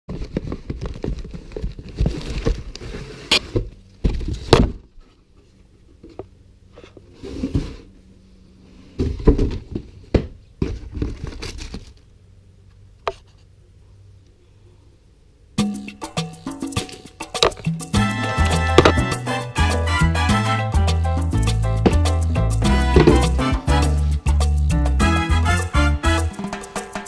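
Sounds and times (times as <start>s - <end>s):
packaging crinkling and rustling: 0.1s - 3.1s.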